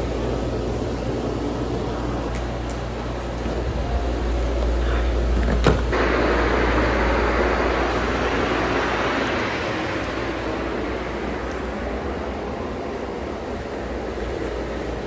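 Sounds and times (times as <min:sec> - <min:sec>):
vehicle rumble: 0:00.0 - 0:15.0
wash of noise: 0:05.9 - 0:15.0.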